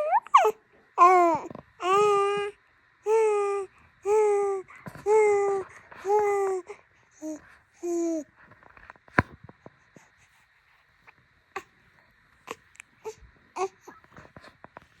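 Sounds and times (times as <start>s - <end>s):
baby whimpering: 0.0s - 2.5s, 3.1s - 8.2s, 12.5s - 14.1s.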